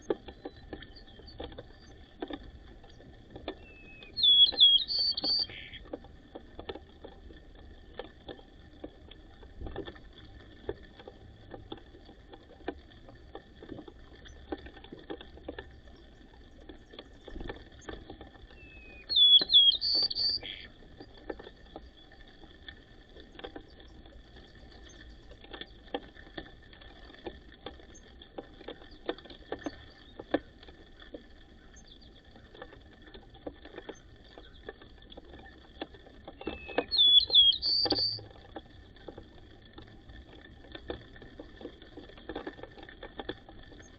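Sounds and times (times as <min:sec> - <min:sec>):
birds pecking at seed: 0:00.0 - 0:43.9
sharp bird chirps: 0:03.6 - 0:05.8, 0:18.6 - 0:20.7, 0:36.5 - 0:38.2.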